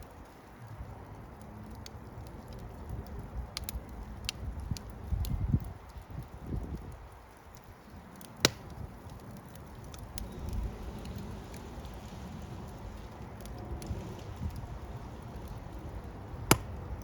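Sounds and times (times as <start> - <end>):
fire crackling: 0.0 - 17.0
loud pop of fire: 8.4 - 8.8, 10.0 - 17.0.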